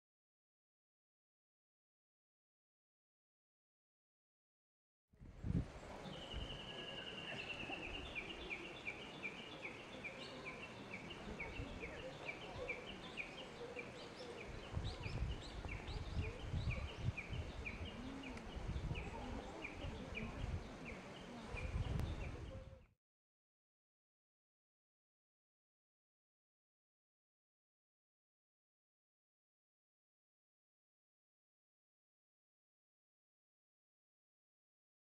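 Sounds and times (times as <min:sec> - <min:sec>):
songbird chirping rapidly: 0:05.5 - 0:22.8.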